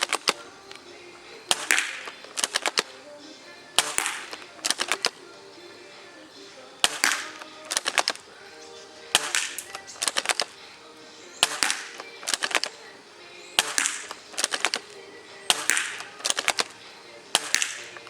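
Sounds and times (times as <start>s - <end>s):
quick run of clicks: 0.0s - 18.0s
airsoft gun shots: 1.5s - 3.0s, 3.8s - 5.1s, 6.8s - 8.2s, 9.1s - 10.6s, 11.4s - 12.8s, 13.6s - 16.8s, 17.4s - 18.0s.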